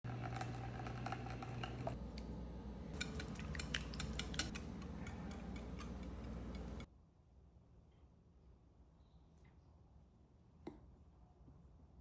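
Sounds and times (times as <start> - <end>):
utensils tapping against a bowl: 2.9 - 6.9.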